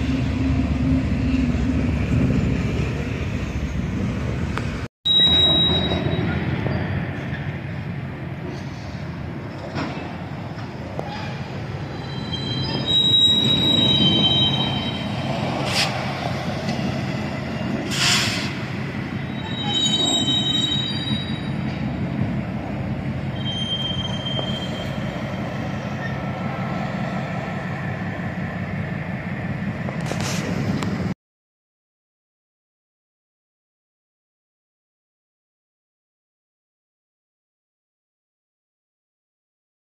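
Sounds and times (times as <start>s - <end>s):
train rumbling past: 0.0s - 31.2s
train wheels squealing: 5.1s - 7.5s, 10.9s - 16.0s, 19.2s - 21.9s, 23.2s - 26.3s.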